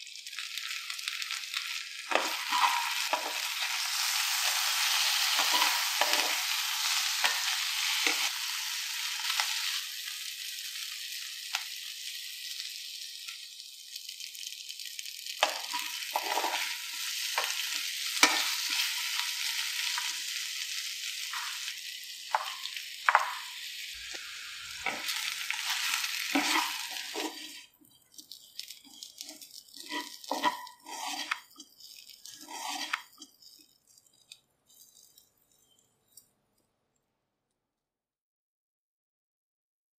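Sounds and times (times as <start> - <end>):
vegetables sizzling in oil: 0.0 - 35.8
wooden spatula scraping a pan: 1.6 - 9.8, 15.4 - 21.7, 22.3 - 36.3.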